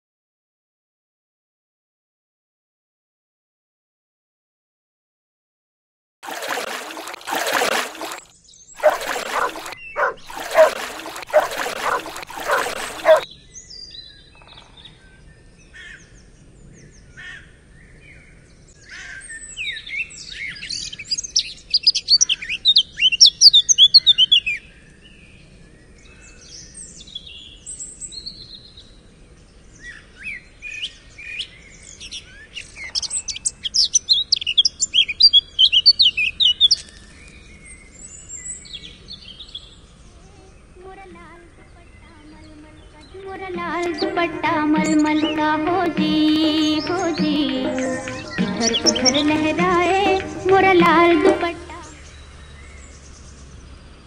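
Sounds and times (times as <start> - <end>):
birds chirping: 6.3 - 13.3, 32.3 - 53.6.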